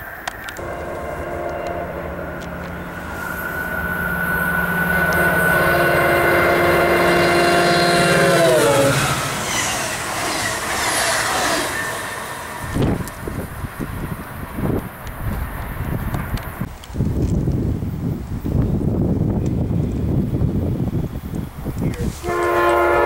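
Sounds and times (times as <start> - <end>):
train coaches rolling by: 0.0 - 23.0
train horn: 0.6 - 13.1, 22.0 - 23.0.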